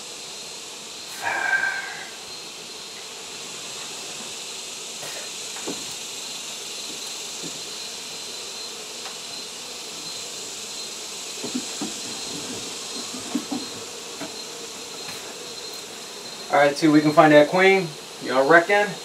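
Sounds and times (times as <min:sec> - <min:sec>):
bees buzzing: 0:00.0 - 0:19.0
high steady hiss: 0:00.0 - 0:19.0
soft knocks on hive: 0:05.6 - 0:05.9, 0:11.4 - 0:14.4.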